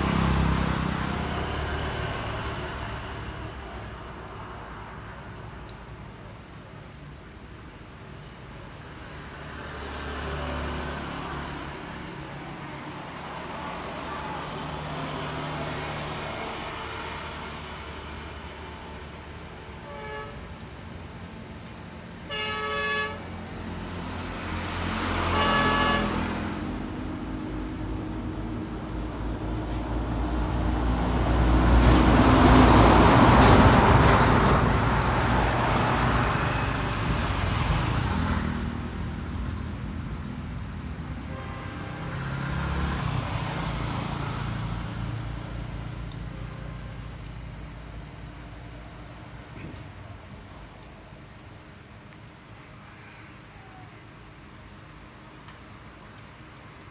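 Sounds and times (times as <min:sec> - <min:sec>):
vehicle passing close: 0:00.0 - 0:05.0, 0:09.1 - 0:19.0, 0:23.3 - 0:48.7
road traffic: 0:00.0 - 0:56.9
vehicle horn toots: 0:19.8 - 0:20.5, 0:22.3 - 0:23.3, 0:25.2 - 0:26.7, 0:41.2 - 0:42.3.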